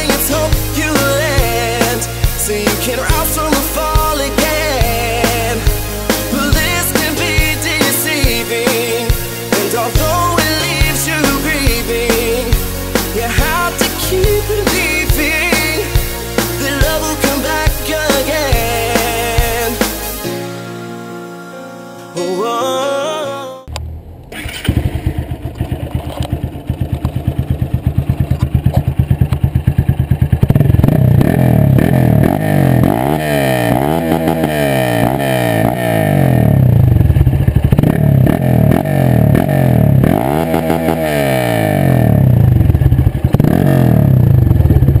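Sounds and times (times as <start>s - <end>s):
motorcycle engine revving: 0.0s - 20.3s, 23.7s - 45.0s.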